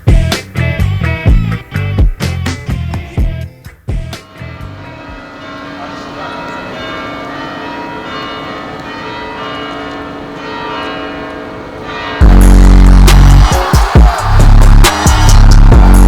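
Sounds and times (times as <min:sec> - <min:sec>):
deep bass beat: 0:00.0 - 0:04.8, 0:12.2 - 0:16.0
bell-like ringing notes: 0:04.3 - 0:16.0.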